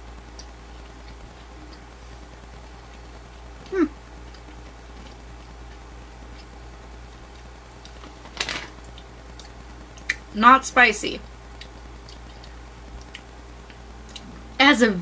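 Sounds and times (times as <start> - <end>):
person chewing jerky: 0.2 - 6.6, 7.2 - 10.3, 11.5 - 14.4
person humming mm: 3.6 - 4.0.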